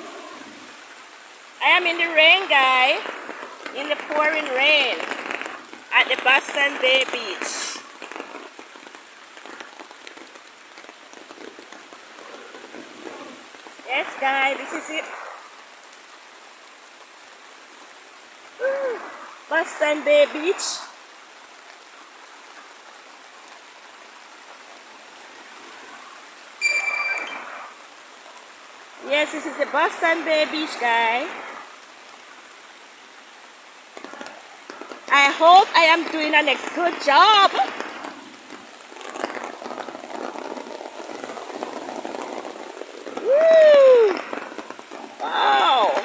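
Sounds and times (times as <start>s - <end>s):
heavy rain pouring: 0.0s - 46.0s
loud call rising and falling: 26.6s - 27.8s.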